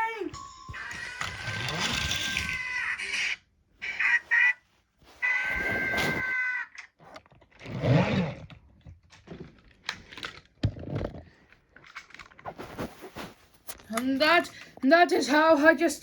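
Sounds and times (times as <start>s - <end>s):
toy trains clicking and knocking: 0.0s - 3.4s.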